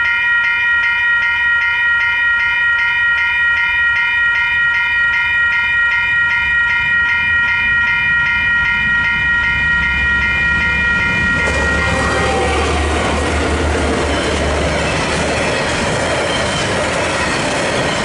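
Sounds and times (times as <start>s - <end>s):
level crossing warning bells: 0.0s - 18.0s
locomotive engine rumbling: 8.0s - 18.0s
wagons clattering on rails: 9.8s - 18.0s.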